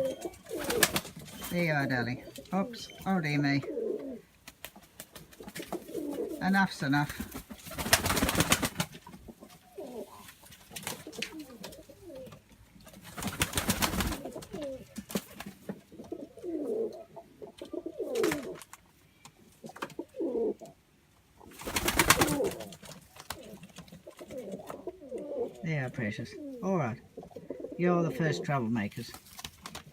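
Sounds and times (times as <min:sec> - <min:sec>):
doves cooing: 0:00.0 - 0:18.8, 0:19.6 - 0:20.8, 0:21.4 - 0:28.7
rapid rustling bursts: 0:00.5 - 0:01.8, 0:04.4 - 0:09.2, 0:13.0 - 0:15.6.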